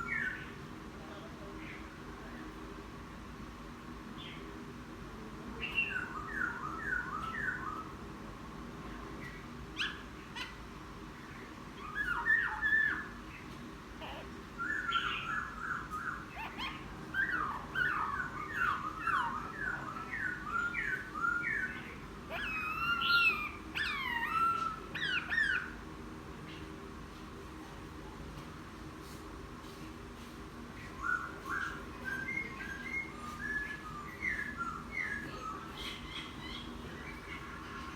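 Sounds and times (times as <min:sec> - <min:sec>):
bird singing: 0:00.0 - 0:00.6, 0:05.6 - 0:08.0, 0:11.2 - 0:25.8, 0:30.8 - 0:37.9.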